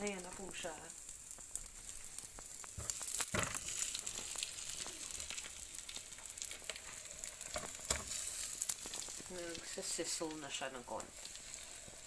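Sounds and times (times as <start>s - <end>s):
patties sizzling in oil: 0.0s - 12.0s
patty knocking in pan: 2.7s - 3.8s.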